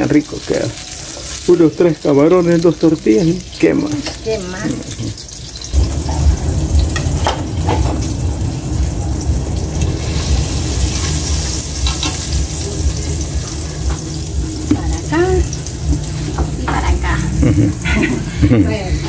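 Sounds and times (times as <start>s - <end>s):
vegetables sizzling in oil: 0.0s - 19.0s
low rumble: 5.7s - 19.0s.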